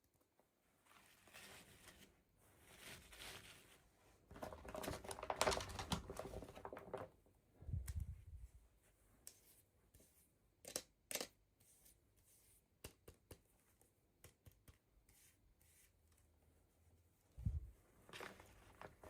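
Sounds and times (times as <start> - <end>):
toy packaging clicks and taps: 10.6 - 11.4.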